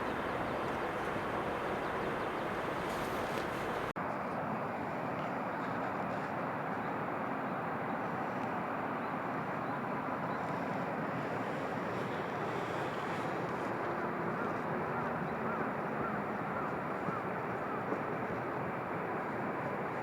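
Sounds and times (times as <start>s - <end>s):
train running rumble: 0.0s - 3.9s.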